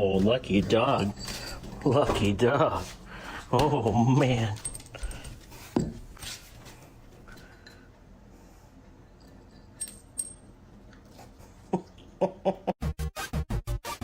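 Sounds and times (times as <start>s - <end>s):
light metallic clinks: 9.1s - 10.6s.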